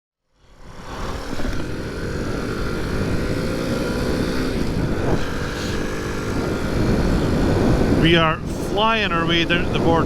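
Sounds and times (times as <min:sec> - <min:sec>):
motorcycle engine running: 0:00.4 - 0:10.0
wind rumbling on microphone: 0:00.4 - 0:10.0.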